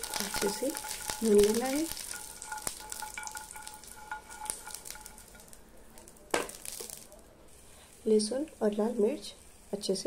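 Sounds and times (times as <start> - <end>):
stirring clicks: 0.0 - 7.1
food sizzling in hot oil: 0.0 - 10.0.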